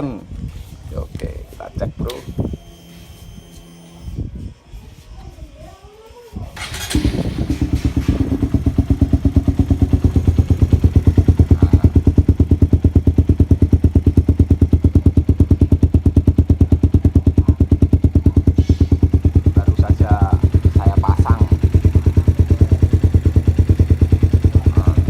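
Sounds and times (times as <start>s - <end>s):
motorcycle engine starting and idling: 6.6s - 25.0s.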